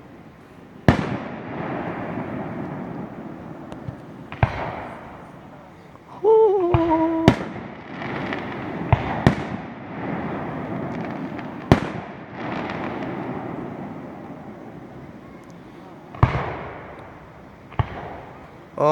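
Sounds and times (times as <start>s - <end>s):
whistling firework: 0.0s - 18.7s
sharp firework bangs: 0.9s - 5.5s, 6.6s - 18.6s.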